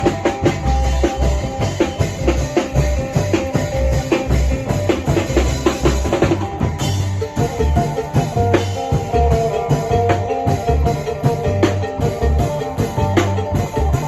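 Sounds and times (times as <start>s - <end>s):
deep drum beats: 0.0s - 14.0s
sharp percussion strokes: 0.0s - 14.0s
plucked lute melody: 6.5s - 14.0s.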